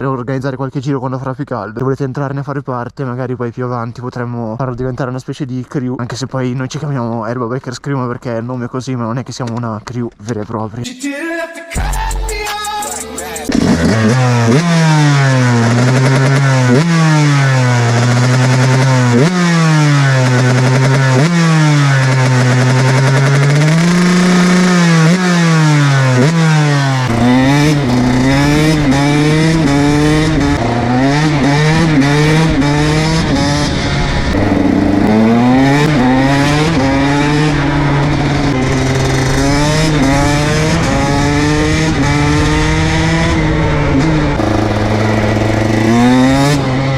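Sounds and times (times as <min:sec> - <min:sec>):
motocross engine revving: 0:12.9 - 0:46.9
low rumble: 0:27.0 - 0:46.9.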